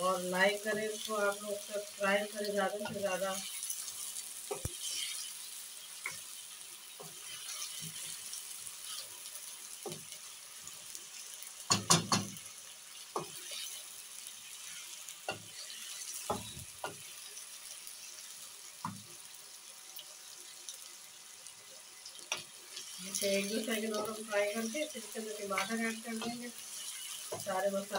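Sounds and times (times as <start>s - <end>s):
potatoes sizzling in hot oil: 0.0s - 27.9s
wooden spatula knocking on pan: 11.7s - 12.4s, 27.3s - 27.6s.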